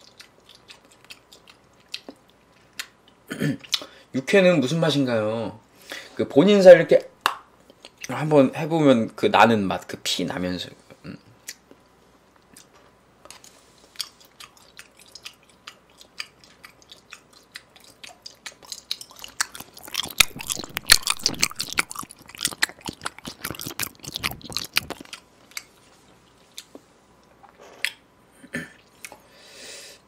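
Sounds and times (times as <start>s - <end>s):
close-up chewing: 0.0s - 3.9s, 12.4s - 28.0s.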